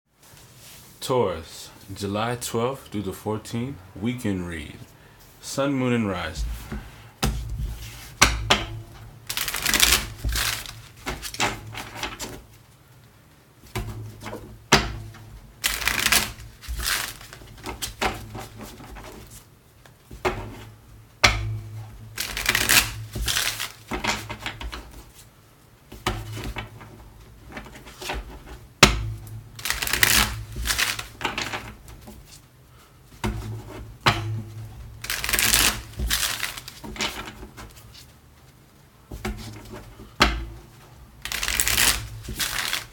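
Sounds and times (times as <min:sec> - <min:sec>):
cards being shuffled by hand: 0:09.3 - 0:12.4, 0:15.6 - 0:19.4, 0:22.2 - 0:25.3, 0:29.6 - 0:32.4, 0:35.0 - 0:38.6, 0:41.2 - 0:42.9.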